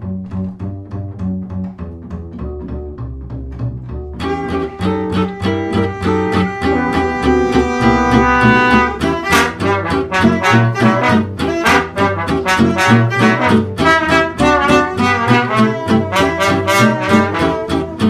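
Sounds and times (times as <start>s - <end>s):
upbeat music with brass: 4.2s - 18.0s.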